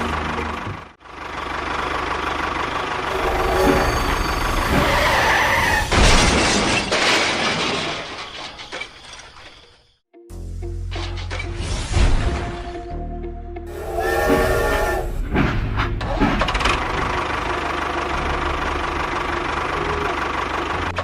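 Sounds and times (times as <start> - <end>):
small engine running: 1.1 - 4.7
loud clatter: 3.1 - 9.6.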